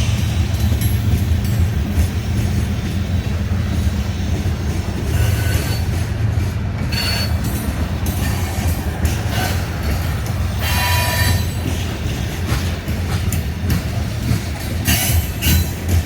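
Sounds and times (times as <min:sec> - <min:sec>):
train wheels rumbling on rail: 0:00.0 - 0:16.0
high-pitched wheel squeals: 0:06.9 - 0:07.4.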